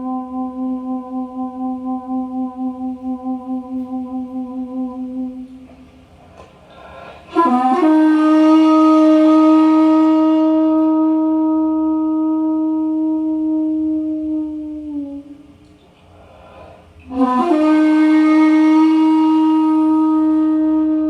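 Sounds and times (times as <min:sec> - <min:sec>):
bamboo flute solo: 0:07.3 - 0:15.5, 0:17.0 - 0:21.0.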